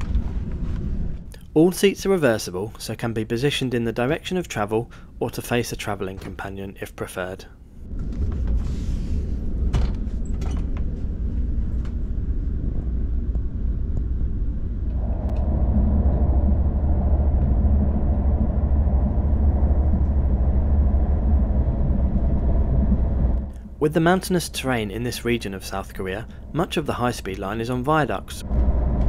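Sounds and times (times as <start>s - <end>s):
train cabin rumble: 7.8s - 29.0s.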